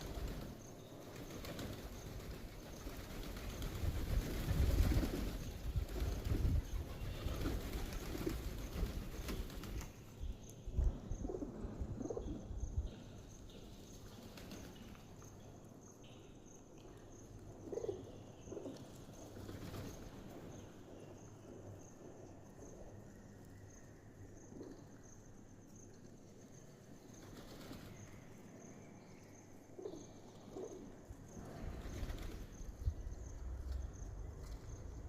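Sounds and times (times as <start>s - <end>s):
wings flapping: 0.0s - 10.1s, 14.1s - 15.0s, 19.3s - 20.3s, 27.2s - 28.1s, 31.4s - 33.1s
pigeons cooing: 17.6s - 18.8s.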